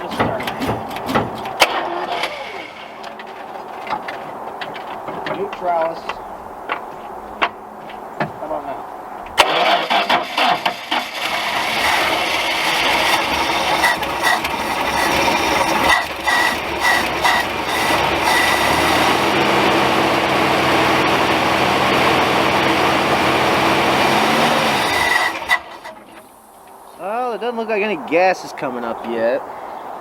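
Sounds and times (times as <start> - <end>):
truck engine starter cranking: 0.0 - 3.4, 9.4 - 26.6.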